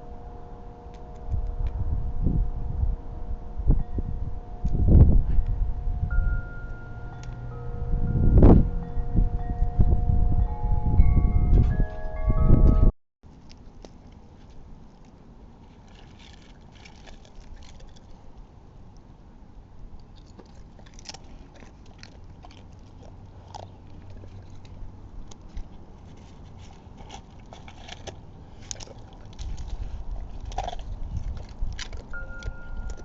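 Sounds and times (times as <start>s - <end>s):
low outdoor rumble: 0.0s - 33.0s
squirrel chewing nuts: 19.9s - 33.0s.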